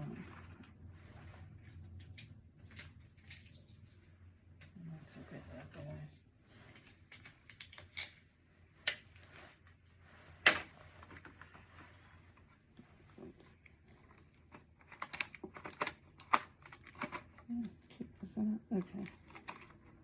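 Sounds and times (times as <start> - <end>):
small hard items clicking: 14.1 - 18.0.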